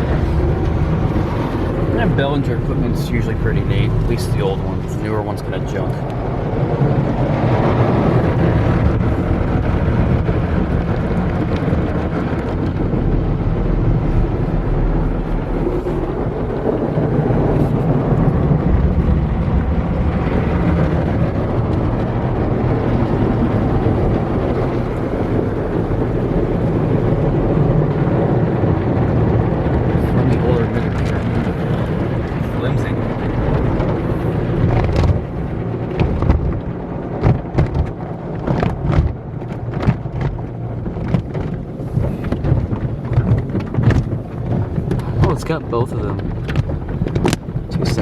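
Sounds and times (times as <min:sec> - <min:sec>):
car wash equipment rushing: 0:00.0 - 0:48.0
low rumble: 0:00.0 - 0:48.0.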